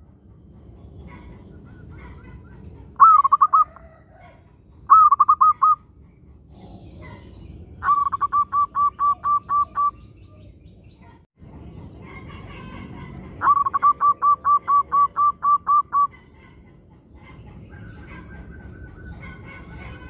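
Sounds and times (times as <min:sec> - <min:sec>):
dove cooing: 0:01.0 - 0:05.8, 0:06.5 - 0:10.5, 0:12.5 - 0:20.0.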